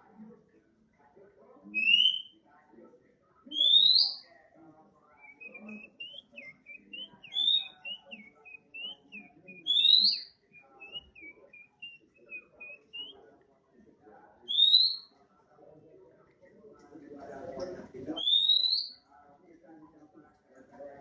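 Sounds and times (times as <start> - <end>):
bird twittering: 1.8 - 2.4, 3.5 - 4.3, 5.1 - 13.2, 14.4 - 15.1, 18.1 - 19.0
loud rising bird whistles: 5.2 - 13.1.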